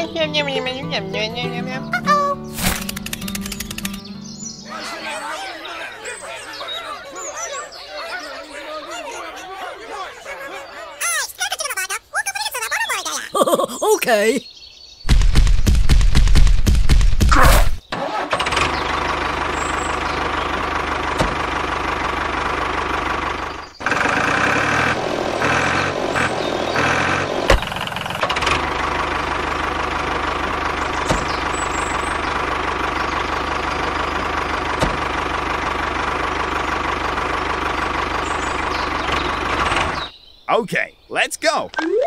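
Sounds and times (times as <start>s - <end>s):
tractor engine running: 2.5s - 10.1s, 15.1s - 40.2s.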